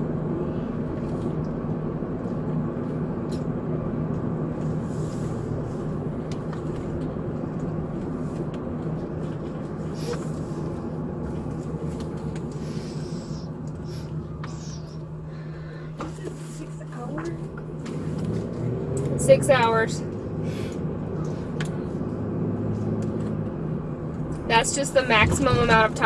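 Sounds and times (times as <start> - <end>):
low hum: 0.0 - 26.0
road and engine noise in car: 0.0 - 26.0.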